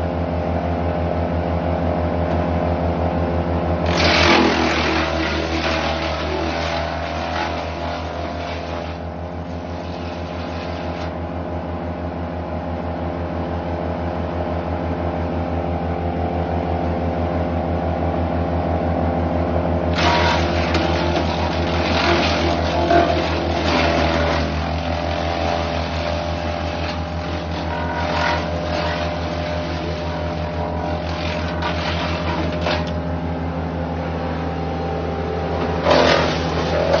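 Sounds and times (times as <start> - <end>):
wood chipper engine running: 0.0 - 37.0
wood going through chipper: 3.4 - 11.5, 19.8 - 34.0, 35.4 - 37.0.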